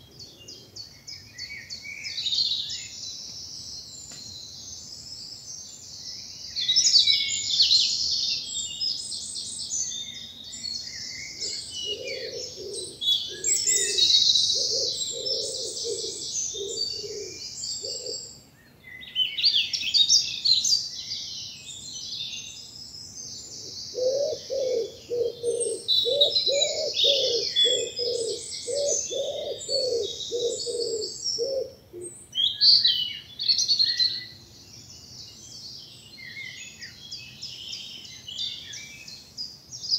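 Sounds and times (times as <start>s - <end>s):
songbirds singing: 0.0s - 39.9s
pigeon cooing: 11.4s - 18.2s, 23.9s - 32.1s.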